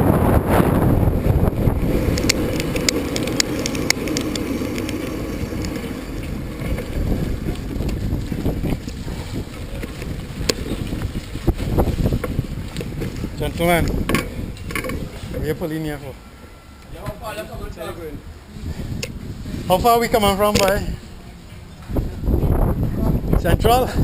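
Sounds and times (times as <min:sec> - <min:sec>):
tyres rumbling on rough track: 0:00.0 - 0:15.6
wind buffeting microphone: 0:00.0 - 0:24.0
bike clicks and rattles: 0:01.8 - 0:15.3.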